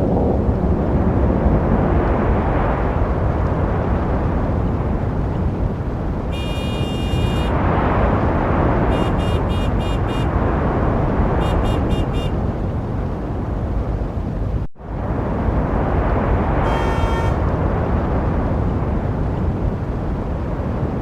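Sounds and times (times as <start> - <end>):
city street traffic rumble: 0.0 - 21.0
high-pitched car horn honking: 6.3 - 7.6, 8.9 - 10.3, 11.4 - 12.4, 16.6 - 17.4.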